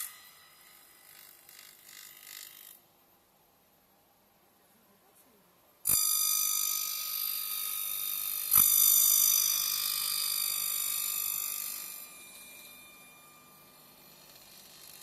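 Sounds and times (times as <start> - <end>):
milling cutters ringing on metal: 0.0 - 2.8, 5.8 - 15.0.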